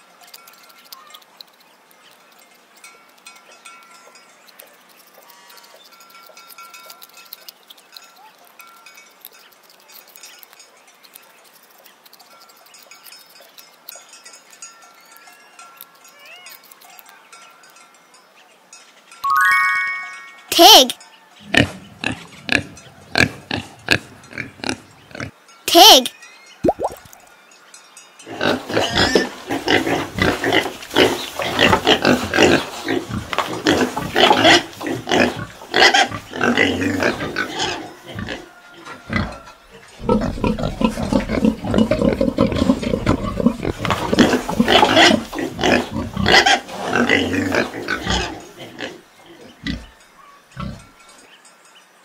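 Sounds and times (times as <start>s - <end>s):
pig grunting: 21.4s - 25.3s, 28.3s - 38.5s, 39.1s - 39.4s, 40.0s - 49.9s.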